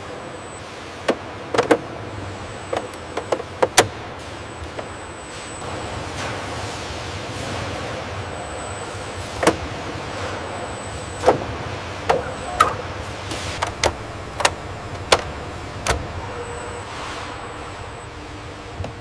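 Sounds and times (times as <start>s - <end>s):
steady factory hum: 0.0s - 19.0s
sharp knocks and clicks of parts: 12.1s - 12.8s, 13.6s - 16.1s.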